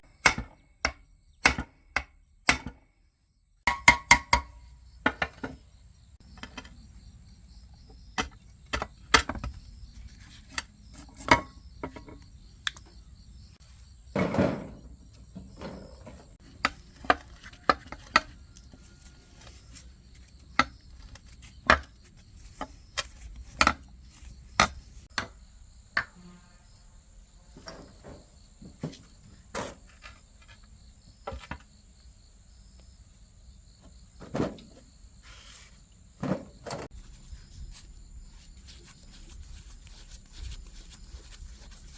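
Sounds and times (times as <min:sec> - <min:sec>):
crickets chirring: 0:04.2 - 0:41.9
tools and metal parts knocking: 0:15.6 - 0:19.6.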